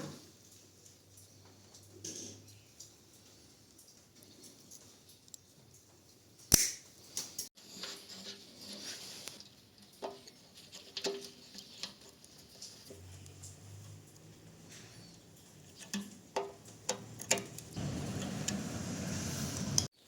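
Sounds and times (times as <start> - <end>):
clicks and light knocks: 9.2 - 18.6.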